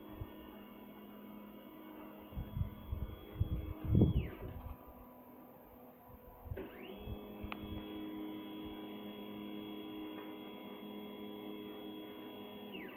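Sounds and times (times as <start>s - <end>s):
stepper motors whining: 0.0s - 5.0s, 6.4s - 12.9s.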